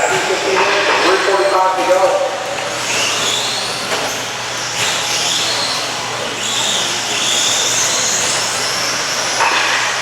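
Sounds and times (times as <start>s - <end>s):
rc trucks electric motor whine: 2.5s - 9.5s.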